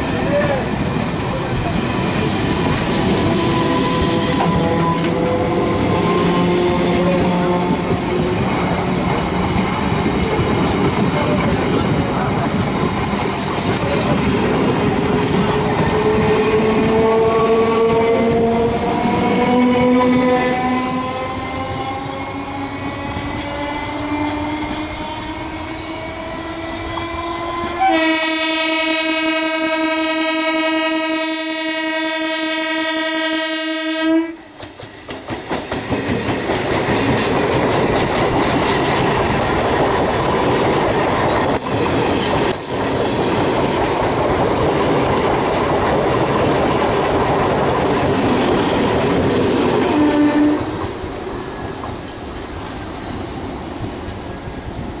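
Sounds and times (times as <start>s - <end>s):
electric train whine: 0.0s - 55.0s
train rumble and wheel clatter: 0.0s - 55.0s
train horn blast: 3.2s - 8.1s, 16.0s - 21.1s, 24.0s - 34.5s, 49.9s - 50.7s.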